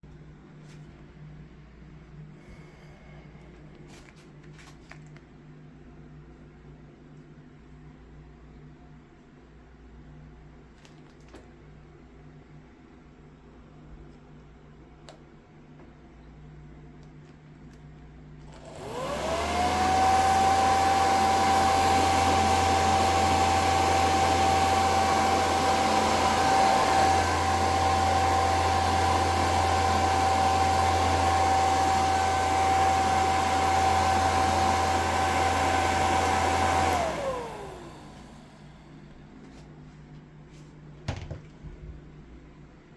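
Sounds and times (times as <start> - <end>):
hair dryer motor whine: 18.5 - 39.2.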